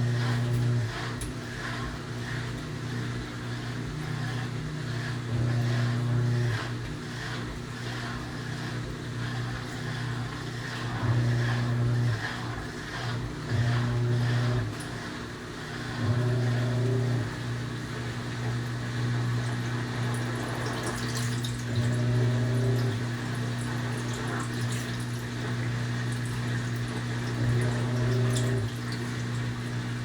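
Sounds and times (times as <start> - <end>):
washing machine motor humming: 0.0 - 30.0
water and clothes swishing: 18.5 - 30.0.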